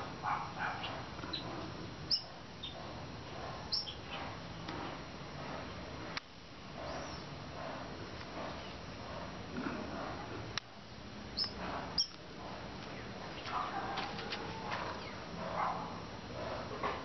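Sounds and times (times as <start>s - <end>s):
small birds chirping: 0.4s - 4.7s, 6.8s - 7.4s, 11.3s - 12.2s.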